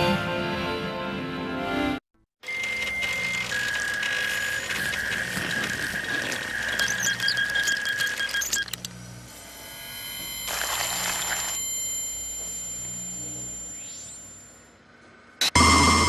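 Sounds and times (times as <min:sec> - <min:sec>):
steady high tones: 0:02.4 - 0:16.0
fax machine clicking: 0:02.5 - 0:08.9.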